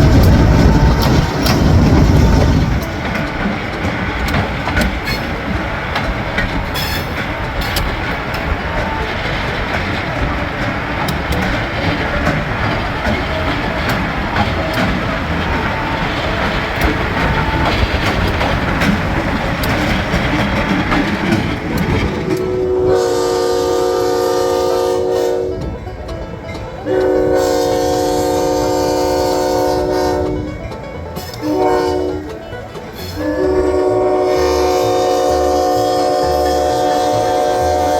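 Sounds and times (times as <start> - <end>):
locomotive air horn blasts: 0.0 - 3.3, 22.4 - 25.9, 26.7 - 37.9
locomotive engine rumbling: 0.0 - 37.9
rail noise: 0.0 - 37.9.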